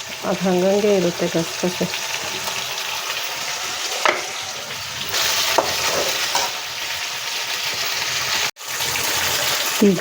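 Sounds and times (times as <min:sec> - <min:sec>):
vegetables sizzling in hot oil: 0:00.0 - 0:10.0
spoon scraping pan: 0:01.8 - 0:08.5.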